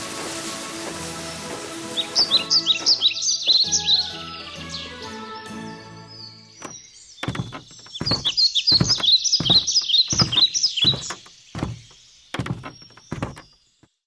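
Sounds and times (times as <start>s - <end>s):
songbird chirping: 0.6s - 14.0s
dull thumps: 6.6s - 13.6s.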